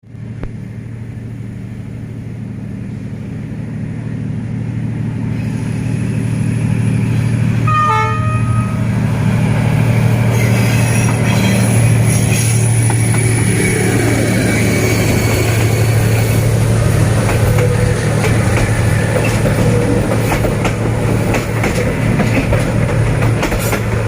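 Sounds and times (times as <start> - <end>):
diesel locomotive engine drone: 0.0 - 24.0
train wheel and rail noise: 0.0 - 24.0
locomotive horn toot: 7.6 - 9.1.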